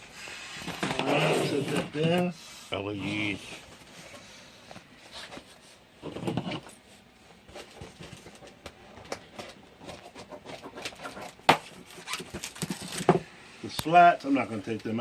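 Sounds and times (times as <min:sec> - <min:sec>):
packaging rustling and clicks: 0:10.5 - 0:13.2.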